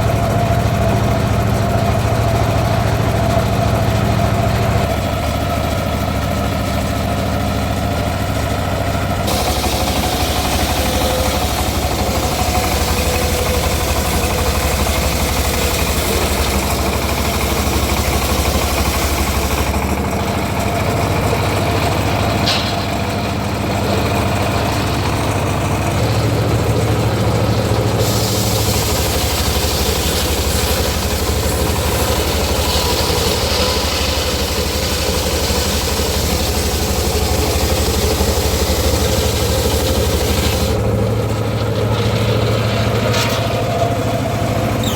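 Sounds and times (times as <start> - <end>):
circular saw mill humming: 0.0 - 44.9
high hiss: 9.3 - 16.8.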